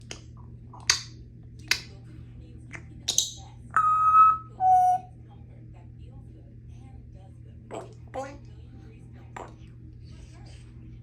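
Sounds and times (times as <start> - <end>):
parrot two-note whistle: 3.7 - 5.1.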